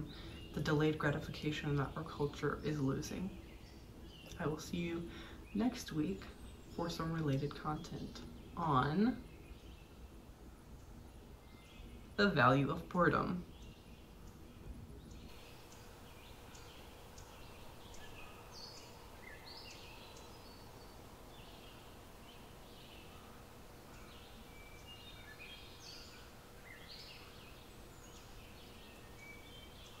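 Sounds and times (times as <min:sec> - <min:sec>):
birds chirping and whistling: 0:13.2 - 0:30.0.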